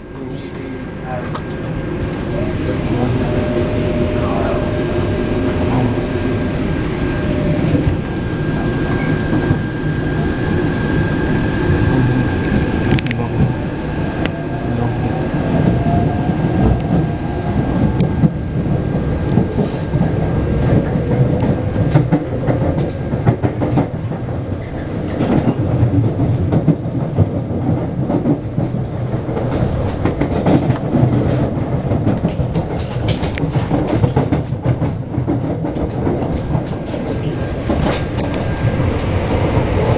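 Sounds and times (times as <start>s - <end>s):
train rumble: 0.0s - 39.9s
wheels clacking over rail joints: 19.3s - 39.9s.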